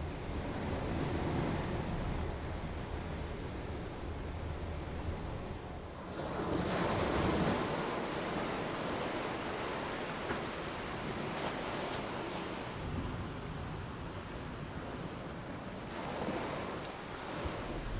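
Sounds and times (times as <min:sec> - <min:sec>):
low rumble of wind: 0:00.0 - 0:08.0, 0:12.6 - 0:17.9
sea waves rushing water: 0:06.3 - 0:17.9.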